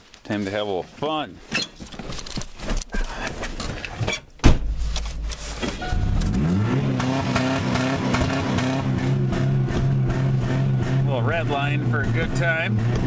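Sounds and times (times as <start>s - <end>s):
car door thumping shut: 4.4s - 6.1s
car engine idling and revving: 4.8s - 13.0s.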